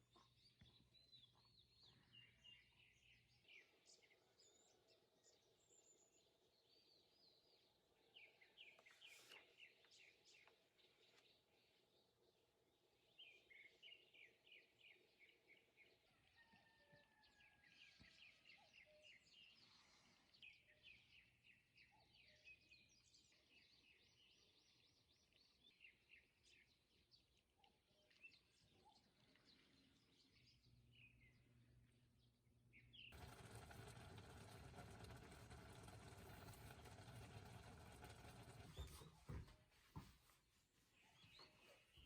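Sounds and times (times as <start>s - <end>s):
faint bird chirps: 13.0s - 31.7s.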